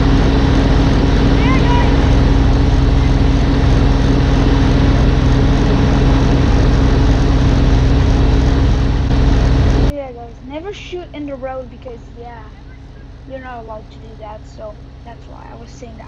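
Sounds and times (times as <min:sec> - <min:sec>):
snowblower engine running: 0:00.0 - 0:09.9.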